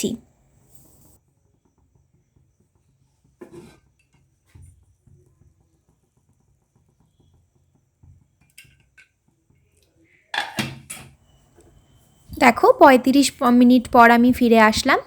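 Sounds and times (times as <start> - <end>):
pot lid knocks and scrapes: 3.4 - 3.9, 10.4 - 11.1
metal cookware clattering: 10.4 - 11.2.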